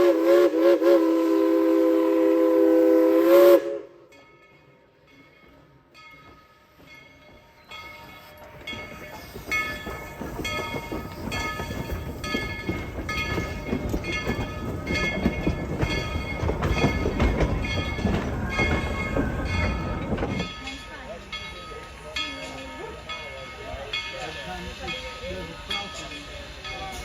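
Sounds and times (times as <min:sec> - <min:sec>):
steam train running: 0:00.0 - 0:27.0.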